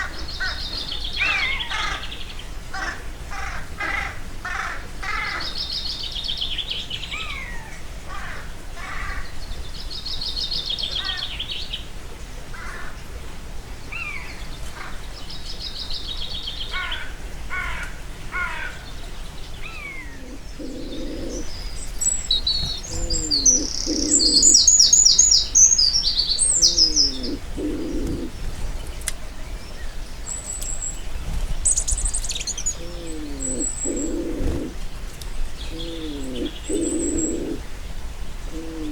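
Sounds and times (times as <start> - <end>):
birds trilling and whistling: 0.0 - 11.9, 13.9 - 38.9
low sliding bird calls: 19.6 - 29.2, 30.3 - 34.9
fast high bird chattering: 20.6 - 28.3.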